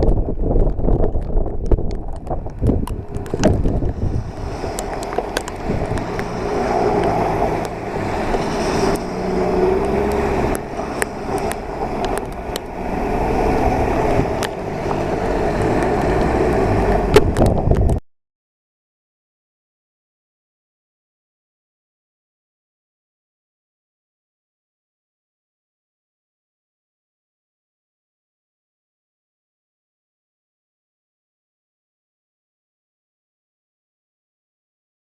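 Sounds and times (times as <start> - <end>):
storm wind buffeting microphone: 0.0 - 18.0.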